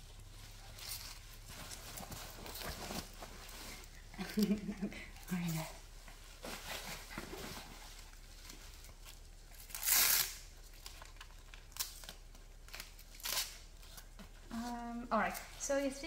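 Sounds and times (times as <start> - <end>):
rustling: 0.0 - 16.0
hook-and-loop straps ripping: 9.0 - 14.1.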